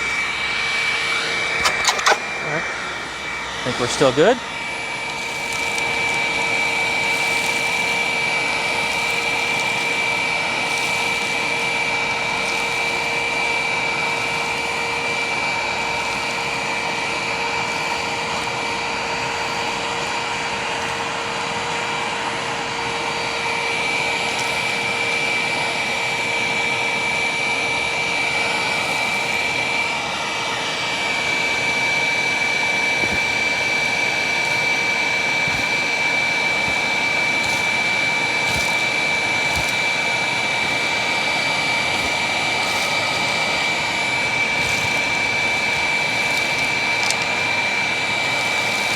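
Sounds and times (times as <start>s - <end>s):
vacuum picking up debris: 0.0s - 13.3s, 31.0s - 48.9s
upright vacuum motor whine: 0.0s - 48.9s.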